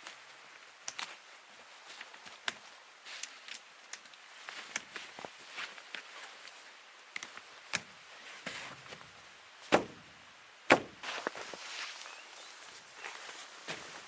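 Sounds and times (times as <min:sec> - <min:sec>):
sharp knocks: 0:09.7 - 0:10.1, 0:10.7 - 0:11.0.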